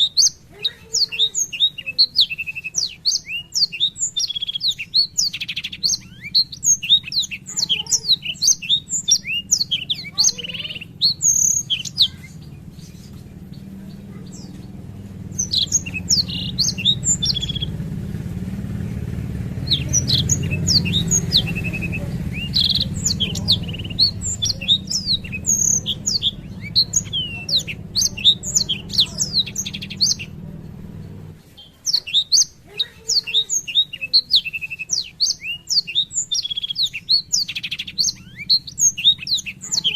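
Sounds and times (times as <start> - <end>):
bird singing rapid trills: 0.0 - 39.9
low steady rumble: 1.8 - 31.5.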